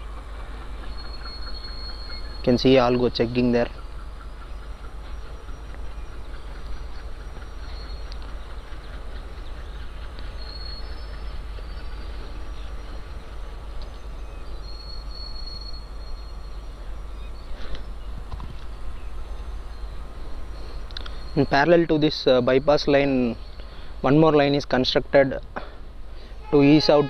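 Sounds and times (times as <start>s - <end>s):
distant train rumble: 0.0s - 27.0s
faint high-pitched squeals: 9.8s - 18.0s, 26.2s - 27.0s.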